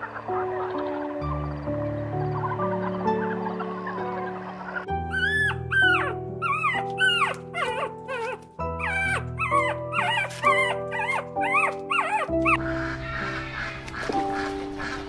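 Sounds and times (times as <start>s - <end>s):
background music: 0.0s - 15.0s
dog whimpering: 5.0s - 12.8s.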